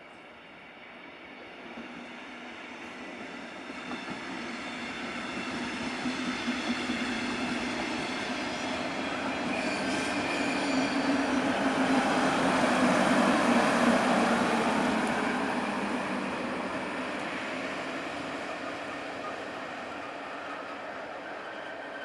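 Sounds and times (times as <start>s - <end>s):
train rumbling past: 0.0s - 22.0s.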